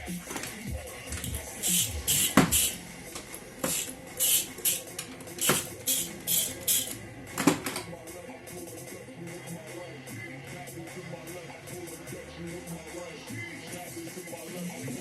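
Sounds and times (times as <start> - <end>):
ratchet wrench clicking: 0.2 - 7.8.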